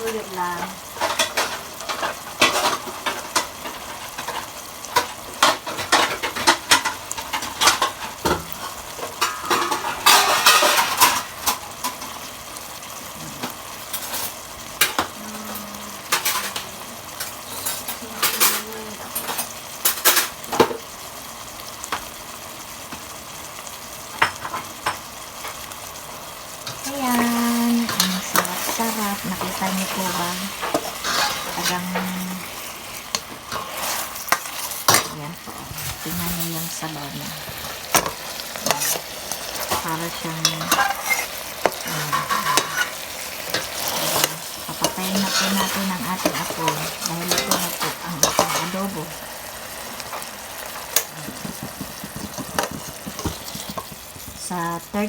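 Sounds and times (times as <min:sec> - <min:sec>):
utensil clinking and scraping pot: 0:00.0 - 0:12.1, 0:26.6 - 0:55.0
food sizzling in a pot: 0:00.0 - 0:55.0.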